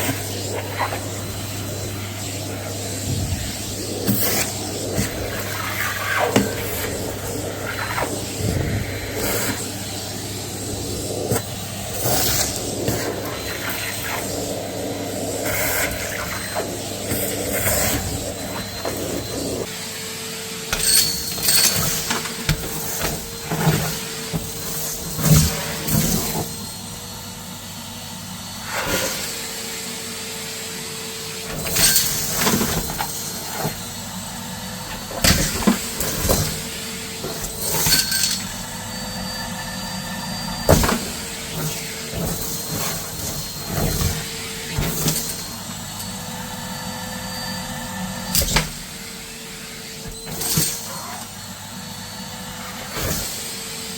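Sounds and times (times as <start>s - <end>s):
vacuum sucking up debris: 0.0s - 19.7s
vacuum cleaner motor running: 0.0s - 53.9s.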